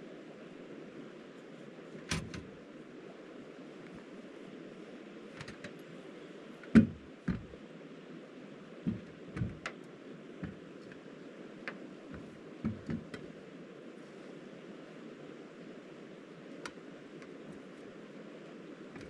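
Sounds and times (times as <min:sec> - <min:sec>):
steady rushing hiss: 0:00.0 - 0:19.0
irregular knocks and taps: 0:06.8 - 0:07.6, 0:08.9 - 0:09.8, 0:11.7 - 0:13.2.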